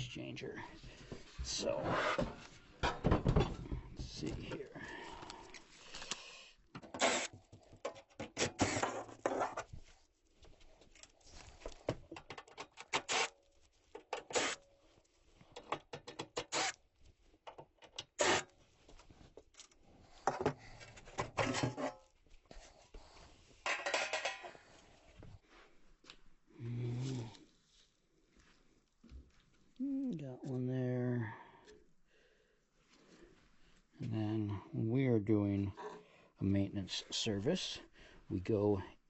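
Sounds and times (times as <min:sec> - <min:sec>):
clicks and rattles of tools: 0:05.5 - 0:09.6, 0:10.9 - 0:14.6, 0:15.4 - 0:16.8, 0:17.4 - 0:18.5, 0:23.6 - 0:24.6.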